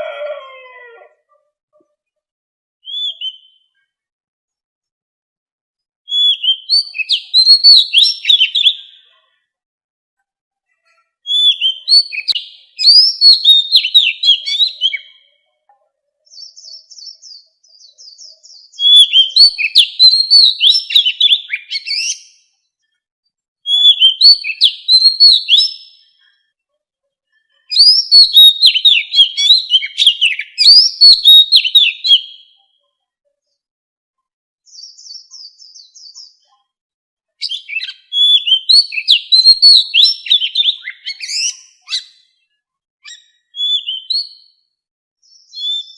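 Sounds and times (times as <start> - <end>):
bird singing whistled phrases: 2.8 - 3.7, 6.1 - 9.1, 11.2 - 15.2, 16.4 - 22.4, 23.6 - 26.1, 27.7 - 32.6, 37.4 - 42.3, 43.0 - 44.6, 45.3 - 45.9.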